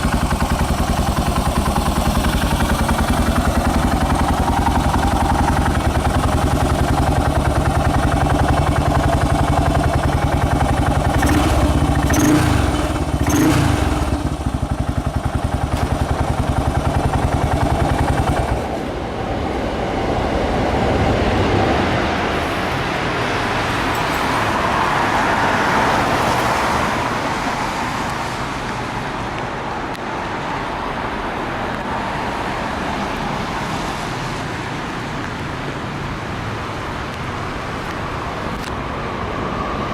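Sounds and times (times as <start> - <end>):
motorcycle engine idling: 0.0 - 18.9.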